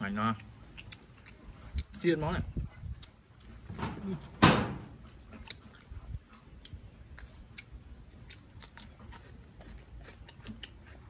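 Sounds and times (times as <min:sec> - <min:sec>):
chewing and crunching food: 0:00.0 - 0:11.0.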